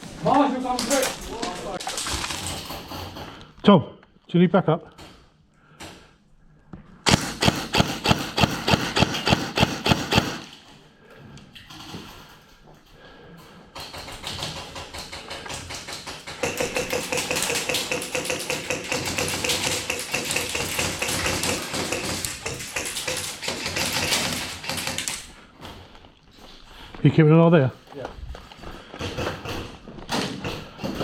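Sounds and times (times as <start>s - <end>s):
airsoft guns rapid clicking: 7.1s - 10.6s, 13.7s - 25.4s.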